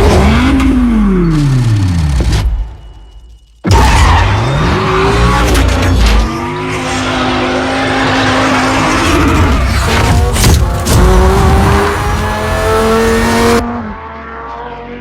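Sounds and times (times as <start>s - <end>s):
tyres skidding and squealing: 3.6s - 13.6s
sports car engine revving: 7.2s - 14.3s.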